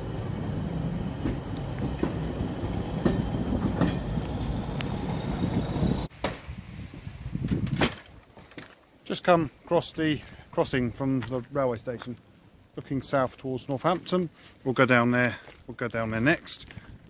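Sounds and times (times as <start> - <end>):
train rumbling: 0.0 - 6.1
wheel clicks over rail joints: 0.0 - 6.1
quiet outdoor ambience: 0.0 - 17.0.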